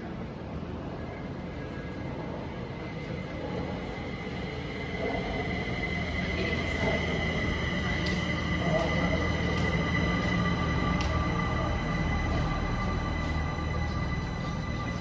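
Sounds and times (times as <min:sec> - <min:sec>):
metro train rumble: 0:00.0 - 0:15.0
high whine: 0:03.2 - 0:15.0.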